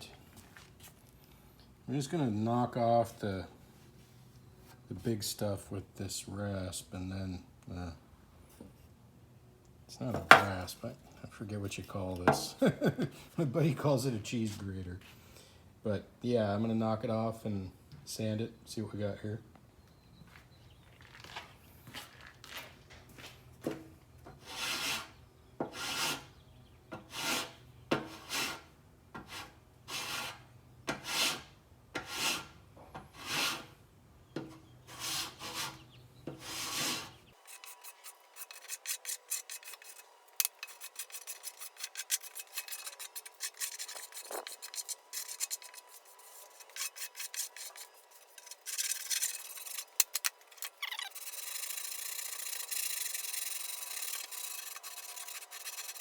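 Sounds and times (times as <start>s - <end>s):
file shaving body filler: 37.4s - 56.0s.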